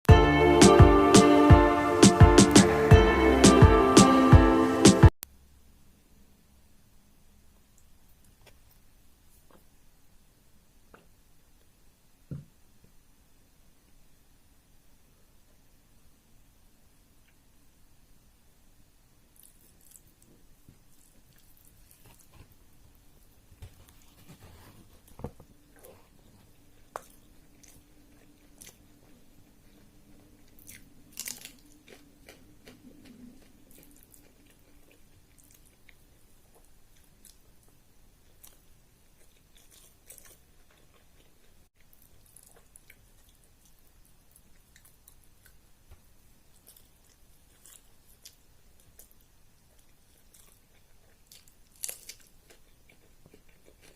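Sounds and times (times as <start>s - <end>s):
faint steady hum: 0.1s - 53.9s
person chewing food: 19.3s - 53.9s.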